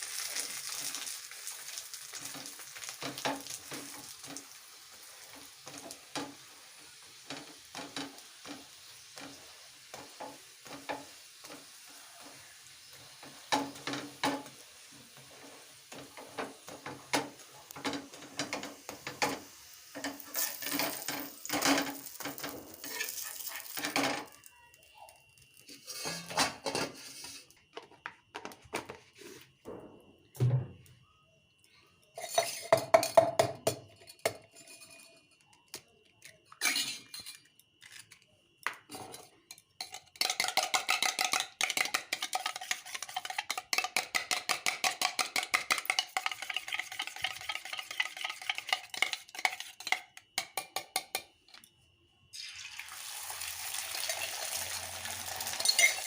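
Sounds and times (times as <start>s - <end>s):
frying sizzle: 0.0s - 27.5s, 38.9s - 51.3s, 52.3s - 56.0s
utensils and dishes clinking: 15.9s - 24.4s, 25.6s - 27.6s, 32.1s - 51.7s, 55.3s - 56.0s
metal utensil whisking in bowl: 39.8s - 50.1s.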